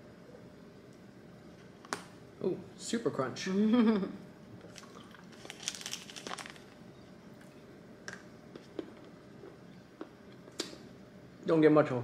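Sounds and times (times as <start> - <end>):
chocolate bar crunching: 4.6 - 6.8.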